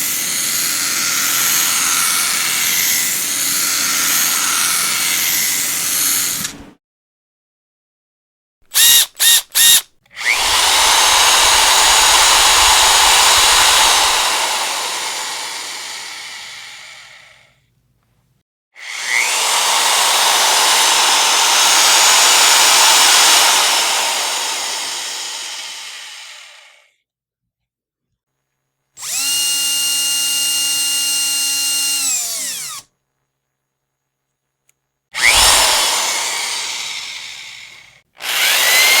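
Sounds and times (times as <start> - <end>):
electric power drill running: 0.0 - 6.6, 8.7 - 17.4, 18.8 - 26.8, 29.0 - 32.9, 35.2 - 39.0.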